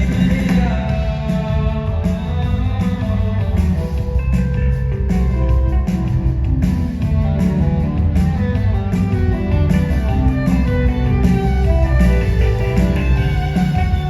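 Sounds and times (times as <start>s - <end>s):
guitar: 0.0s - 14.0s
heavy bass: 0.0s - 14.0s
steady beat: 0.0s - 14.0s.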